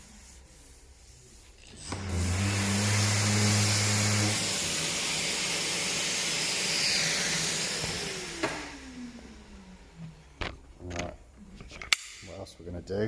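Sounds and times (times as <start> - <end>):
power sander running: 1.7 - 10.7.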